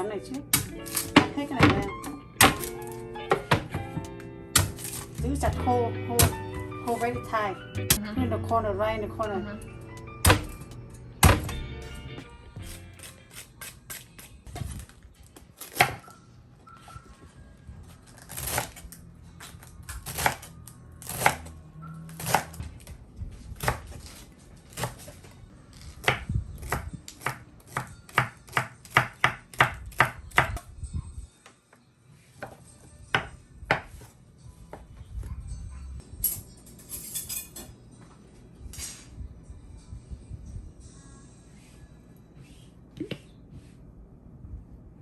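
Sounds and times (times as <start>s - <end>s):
knife chopping on cutting board: 0.5s - 4.0s, 4.6s - 5.6s, 6.2s - 7.2s, 10.2s - 10.6s, 22.2s - 22.6s, 26.0s - 30.6s.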